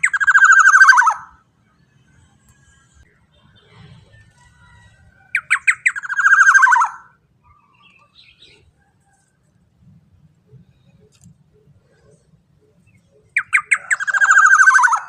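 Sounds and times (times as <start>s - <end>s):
oriole calling: 0.0s - 1.4s, 5.3s - 7.7s, 13.2s - 15.0s.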